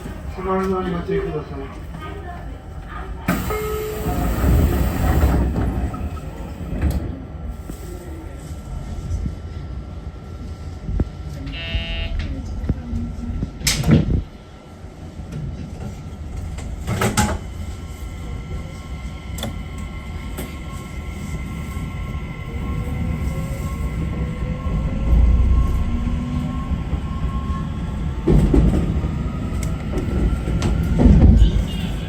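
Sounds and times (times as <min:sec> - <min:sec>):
electric train pulling away: 0:00.0 - 0:07.4.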